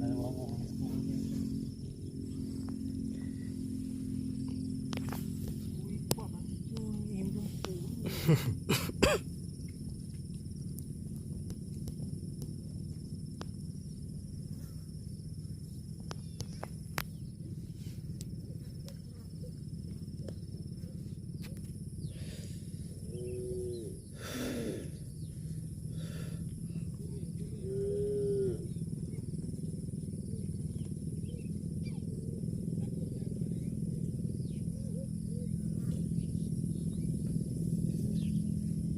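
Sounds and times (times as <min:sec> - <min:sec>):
low rumble: 0:00.0 - 0:08.1
faint insect drone: 0:00.0 - 0:38.9.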